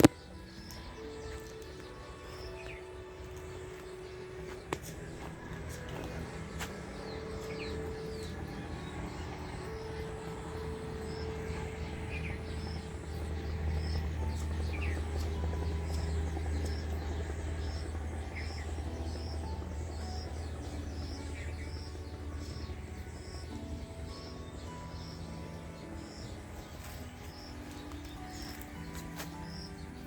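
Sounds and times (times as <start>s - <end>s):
small birds chirping: 0.0s - 30.0s
low rumble: 2.2s - 30.0s.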